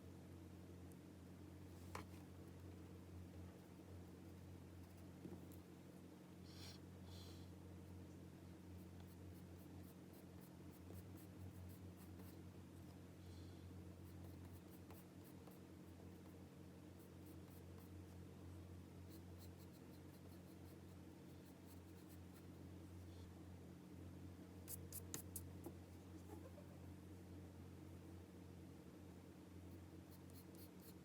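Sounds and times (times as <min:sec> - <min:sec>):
low steady hum: 0:00.0 - 0:31.0
pencil scratching on paper: 0:14.0 - 0:16.3, 0:19.1 - 0:22.5, 0:29.7 - 0:31.0.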